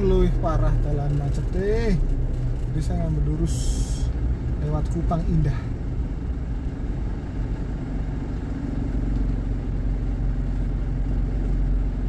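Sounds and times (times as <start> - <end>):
car engine droning hum: 0.0 - 12.0.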